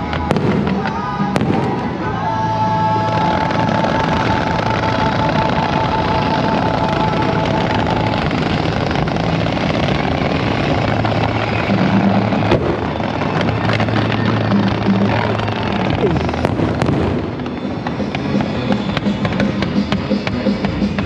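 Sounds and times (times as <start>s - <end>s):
fireworks fountains hissing and crackling: 0.0s - 21.0s.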